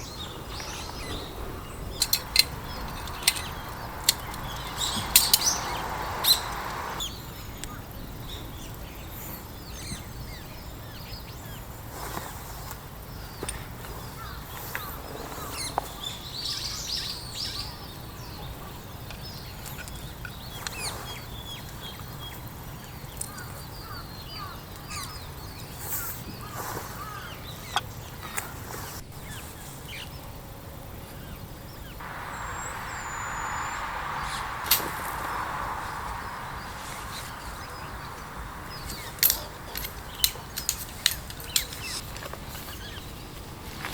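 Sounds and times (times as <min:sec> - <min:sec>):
steady low rumble: 0:00.0 - 0:07.8, 0:32.0 - 0:41.8
small birds chirping: 0:00.0 - 0:43.9
steady hiss: 0:00.0 - 0:43.9
sharp clicks: 0:02.0 - 0:07.1, 0:32.4 - 0:42.0.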